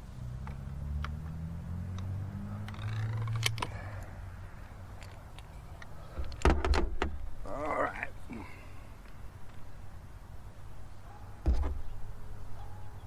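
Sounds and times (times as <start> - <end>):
crossbow gear clicks: 0.4 - 6.4.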